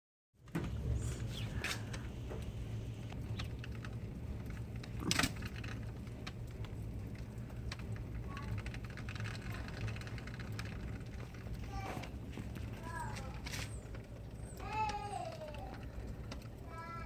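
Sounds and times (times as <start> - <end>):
small ticks and clicks: 1.6 - 17.0.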